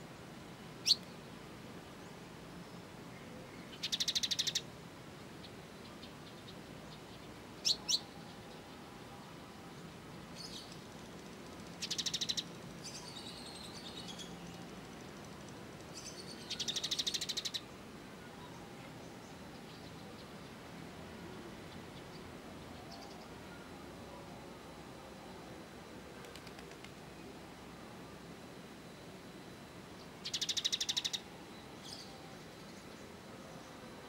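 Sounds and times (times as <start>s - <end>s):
faint steady hiss: 0.0s - 34.0s
soft bird twittering: 0.8s - 1.2s, 30.0s - 33.1s
high bird trills: 30.2s - 31.3s.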